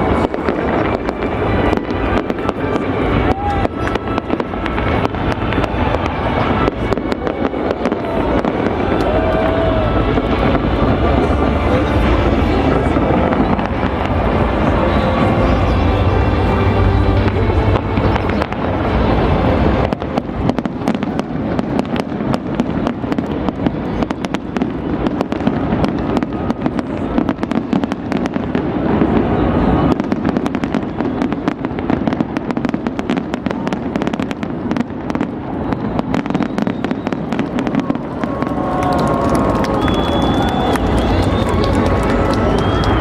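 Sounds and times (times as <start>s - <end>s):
steady low rumble: 0.0s - 24.0s
fireworks bangs and crackles: 0.0s - 43.0s.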